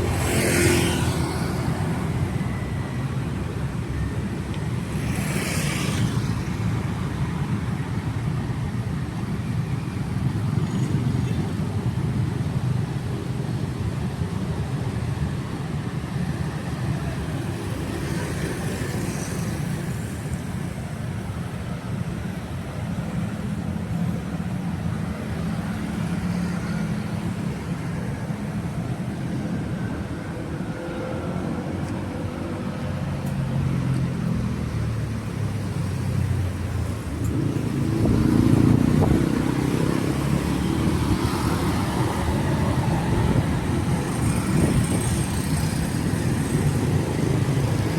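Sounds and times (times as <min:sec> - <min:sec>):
cars and motorbikes passing: 0:00.0 - 0:47.9.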